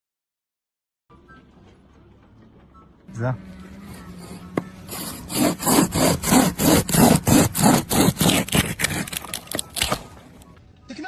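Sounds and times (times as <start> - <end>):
rhythmic rasping strokes: 3.1 - 10.3.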